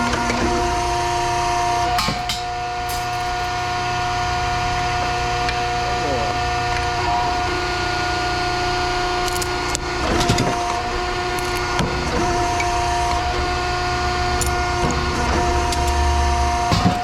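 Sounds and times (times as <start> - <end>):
machine hum with whine: 0.0 - 17.0
knocks and clicks: 2.0 - 3.8, 9.2 - 13.2, 16.6 - 17.0.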